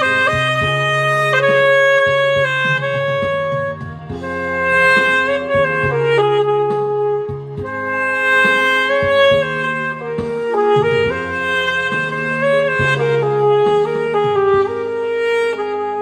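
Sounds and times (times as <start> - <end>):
backing track with bass line: 0.0 - 16.0
saxophone melody: 0.0 - 16.0.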